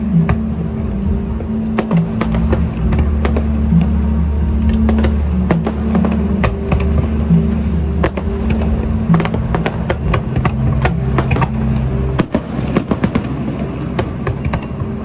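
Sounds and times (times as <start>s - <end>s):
music with low notes: 0.0s - 15.0s
fireworks bangs: 4.7s - 15.0s.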